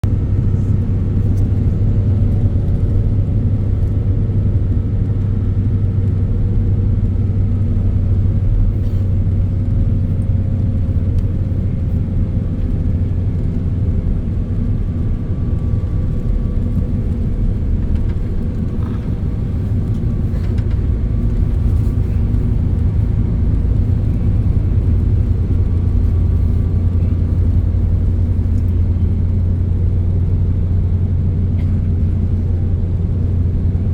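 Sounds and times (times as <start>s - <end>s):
road vehicle rumble: 0.0s - 33.9s.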